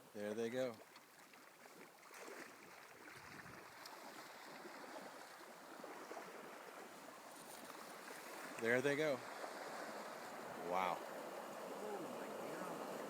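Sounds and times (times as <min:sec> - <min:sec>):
moving water: 0:00.0 - 0:13.0
fish splashing in water: 0:00.8 - 0:08.6.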